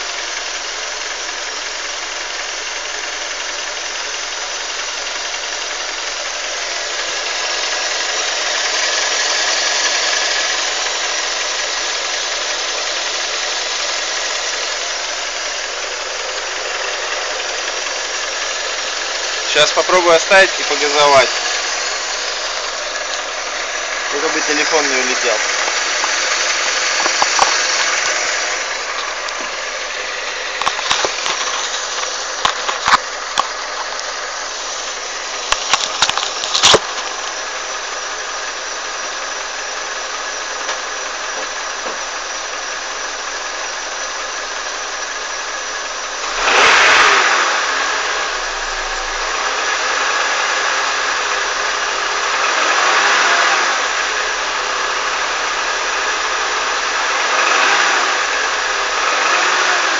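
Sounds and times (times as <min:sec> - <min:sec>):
car engine running: 0:00.0 - 0:59.9
engine knock: 0:00.0 - 0:59.9
engine revving: 0:00.0 - 0:59.9.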